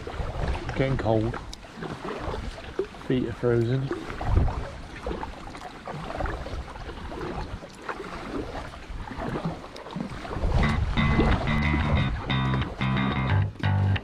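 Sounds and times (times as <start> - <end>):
wind rumble on microphone: 0.0 - 1.5, 4.0 - 5.4, 8.2 - 14.0
water sloshing and splashing: 0.0 - 14.0.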